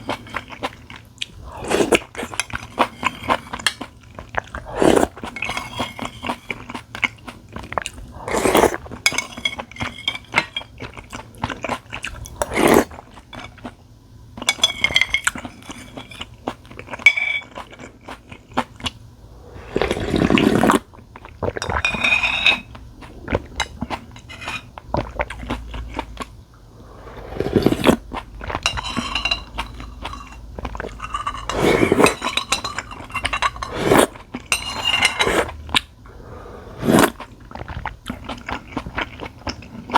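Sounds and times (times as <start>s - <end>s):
chewing and crunching: 0.0s - 13.8s, 14.4s - 19.0s, 19.6s - 26.4s, 36.9s - 39.9s
utensils clinking against bowls: 9.0s - 11.0s, 21.6s - 22.8s, 28.5s - 35.5s.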